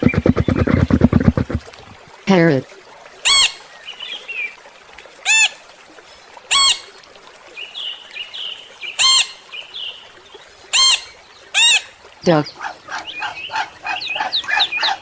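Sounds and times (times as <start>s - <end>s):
parrot squawking: 3.2s - 3.6s, 6.5s - 6.9s, 9.0s - 9.4s, 10.7s - 11.9s.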